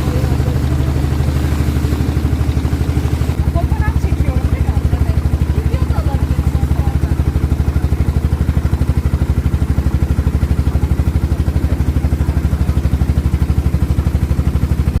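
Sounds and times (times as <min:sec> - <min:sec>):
boat engine chugging: 0:00.0 - 0:15.0.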